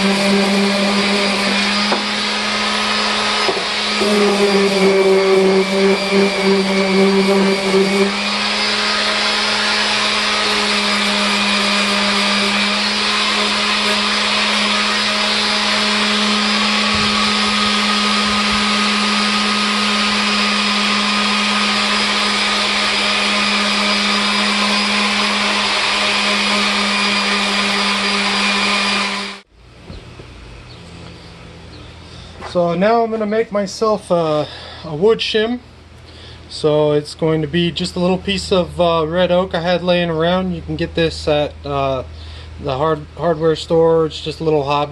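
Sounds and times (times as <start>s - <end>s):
power tool motor humming: 0.0s - 30.2s.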